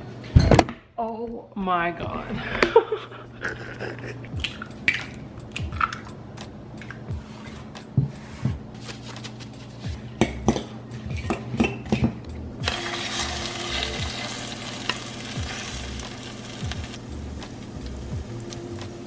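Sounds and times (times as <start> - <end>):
food sizzling in a hot pan: 12.6 - 18.5.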